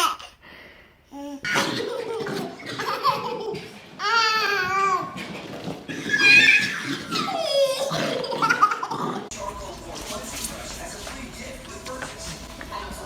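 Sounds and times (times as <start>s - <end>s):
baby laughing: 0.0s - 0.3s, 1.2s - 5.2s, 6.1s - 9.3s.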